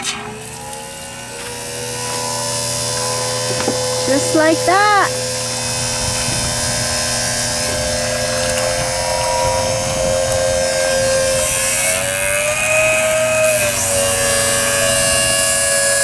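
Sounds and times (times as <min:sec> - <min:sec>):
electric water pump humming: 0:00.0 - 0:16.0.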